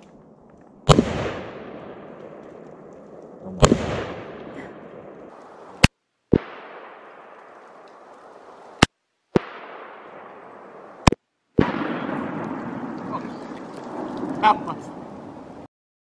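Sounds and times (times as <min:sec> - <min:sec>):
explosion bang: 0:09.4 - 0:13.4.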